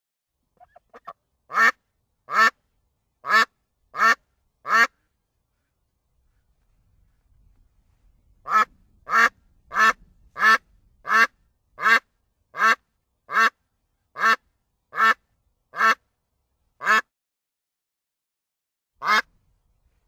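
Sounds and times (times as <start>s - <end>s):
duck quacking: 0.6s - 2.6s, 3.2s - 5.0s, 8.5s - 13.6s, 14.2s - 16.0s, 16.8s - 17.1s, 19.0s - 19.3s.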